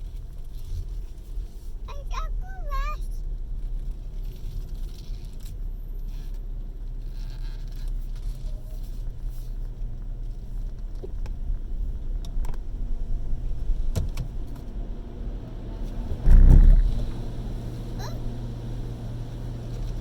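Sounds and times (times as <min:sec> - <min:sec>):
muffled car wash machinery rumble: 0:00.0 - 0:20.0
loud low surge: 0:16.2 - 0:17.2.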